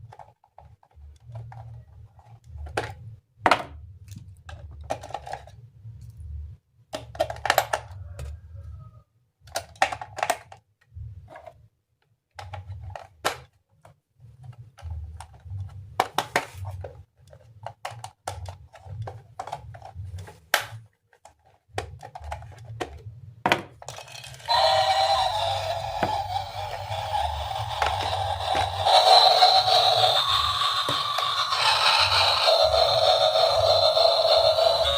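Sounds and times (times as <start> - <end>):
plastic toy parts clicking: 4.1 - 5.6, 9.4 - 10.7, 23.8 - 34.9.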